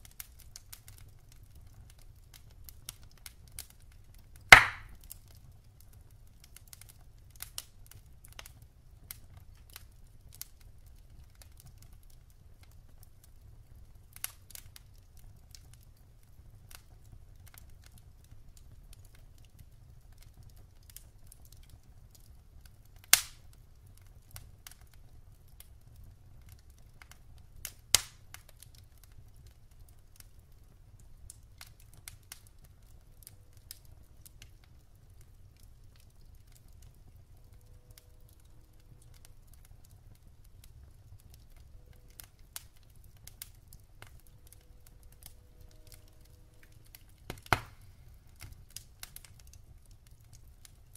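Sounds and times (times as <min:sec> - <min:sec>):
wood fire crackling: 0:00.0 - 0:50.9
sharp loud pops: 0:04.5 - 0:04.9.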